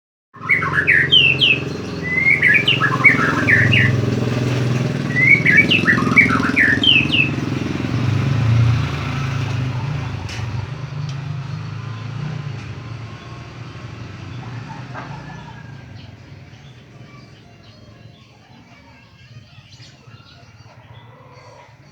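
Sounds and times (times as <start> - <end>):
bird singing whistled notes: 0.4 - 7.5
vehicle engine running: 0.4 - 21.1.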